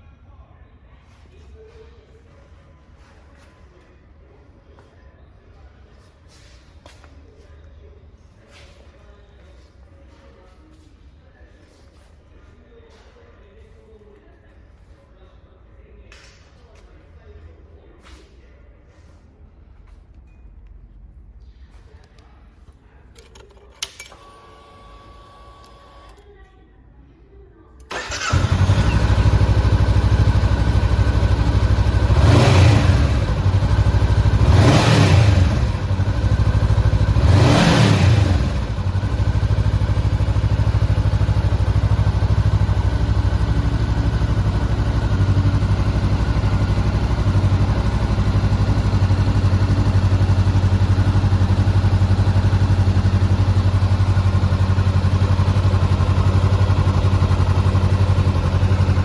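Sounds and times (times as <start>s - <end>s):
motorcycle engine idling and revving: 27.9s - 59.0s.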